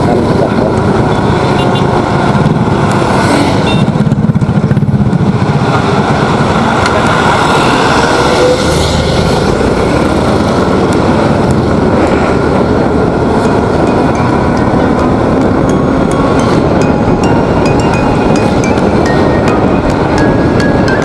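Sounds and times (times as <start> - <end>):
wind on microphone: 0.0 - 21.0
motorcycle engine running: 0.5 - 6.8.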